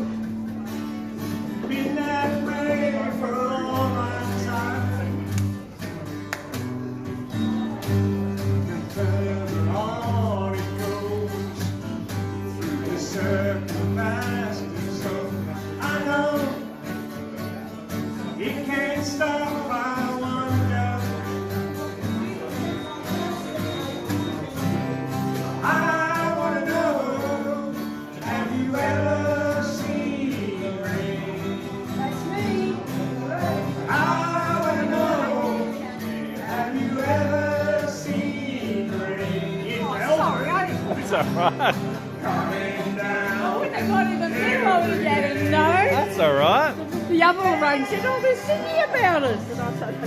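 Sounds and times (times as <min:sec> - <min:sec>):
guitar: 0:00.0 - 0:50.0
person singing: 0:40.9 - 0:47.1.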